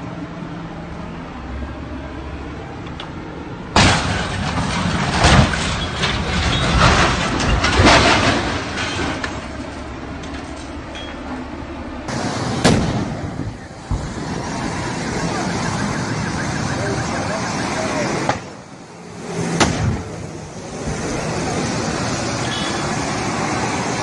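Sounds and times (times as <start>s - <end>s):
vehicle running noise: 0.0s - 24.0s
loud crash: 3.8s - 9.5s, 12.1s - 14.7s, 19.4s - 21.1s
bangs and clattering: 3.8s - 11.4s.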